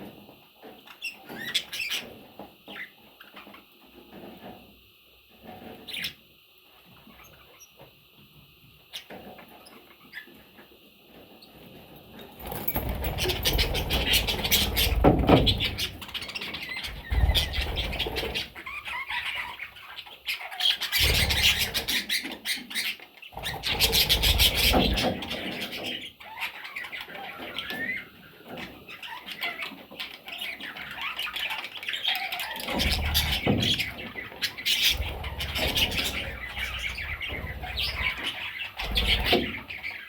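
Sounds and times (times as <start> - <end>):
rustling and wing flapping: 11.8 - 18.6, 23.4 - 25.9, 32.6 - 39.9
budgerigars chirping: 13.1 - 40.0.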